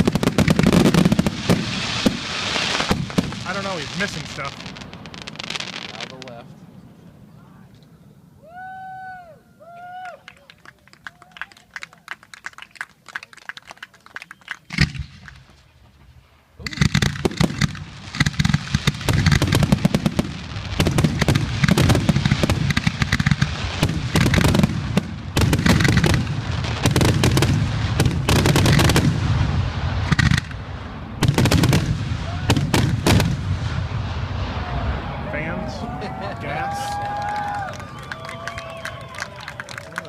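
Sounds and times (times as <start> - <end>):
fireworks bang: 0.0 - 6.4, 14.7 - 36.2
fireworks crackling barrage: 0.0 - 8.9, 9.8 - 40.0.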